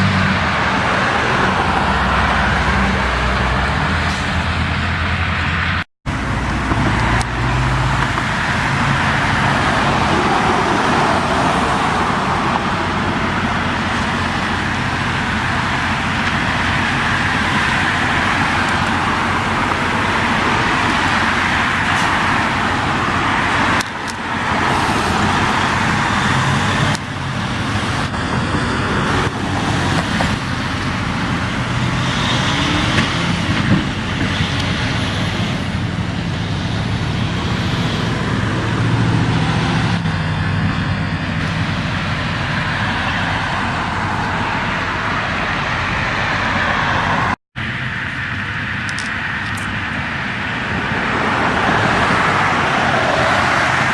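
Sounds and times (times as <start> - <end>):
heavy truck engine drone: 0.0 - 53.9
road traffic passing: 0.0 - 53.9.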